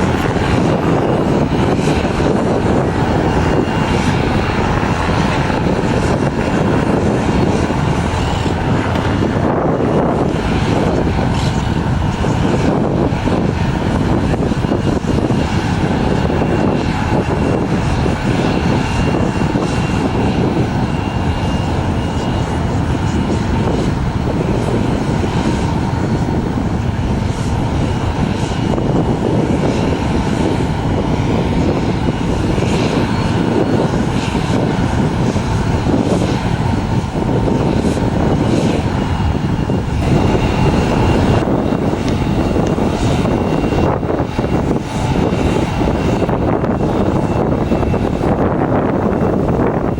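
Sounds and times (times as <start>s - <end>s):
jet engines roaring: 0.0s - 49.9s.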